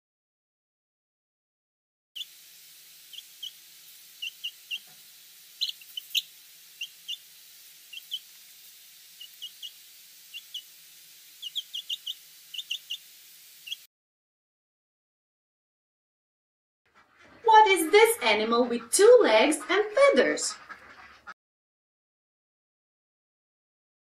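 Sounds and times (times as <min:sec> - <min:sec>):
faint steady hiss: 0:02.2 - 0:13.9
turkey poults peeping: 0:02.2 - 0:13.9, 0:19.5 - 0:21.3.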